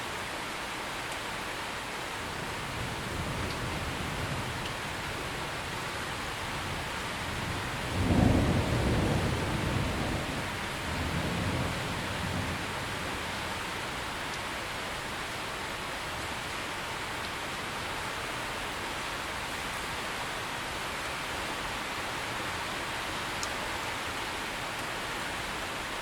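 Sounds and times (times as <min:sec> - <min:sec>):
steady rain: 0:00.0 - 0:26.0
thunder rumbling: 0:06.5 - 0:13.5.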